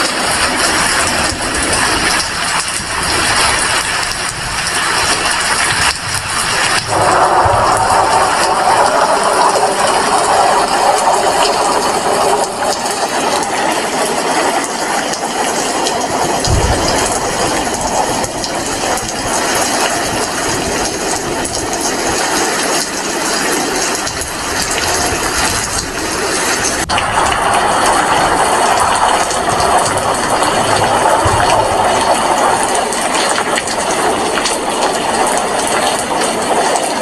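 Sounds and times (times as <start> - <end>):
heavy rain: 0.0 - 37.0
low thump: 16.4 - 19.2.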